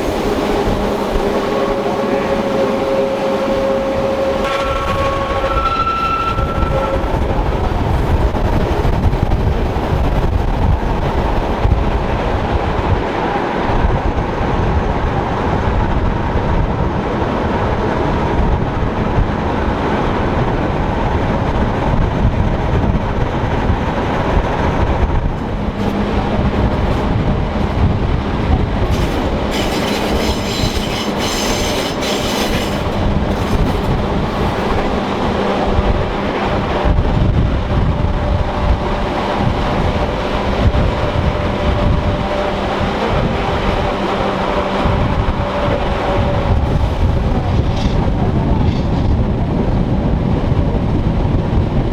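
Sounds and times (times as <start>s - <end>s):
train wheels clattering on rail: 0.0s - 51.9s
high-pitched wheel squeal: 1.4s - 8.0s, 28.8s - 35.2s.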